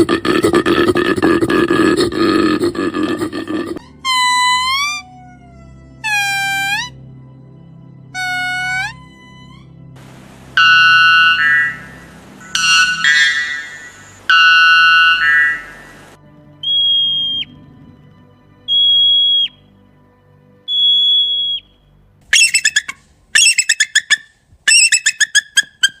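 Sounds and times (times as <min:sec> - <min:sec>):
buzzy animal call: 0:00.0 - 0:07.0, 0:08.1 - 0:19.6, 0:22.3 - 0:26.0
rapid chattering calls: 0:10.0 - 0:17.5, 0:22.3 - 0:26.0
high descending whistles: 0:10.6 - 0:17.5, 0:18.7 - 0:19.6, 0:20.7 - 0:21.7, 0:22.4 - 0:24.1.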